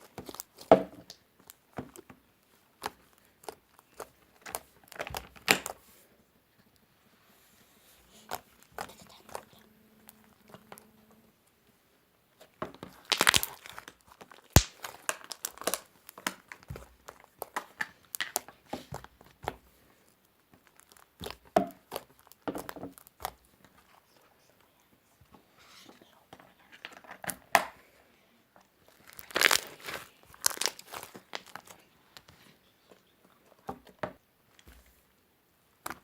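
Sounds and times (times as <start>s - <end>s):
slime crackling and popping: 0.0s - 5.8s, 12.7s - 19.6s, 20.3s - 23.8s, 28.8s - 32.3s.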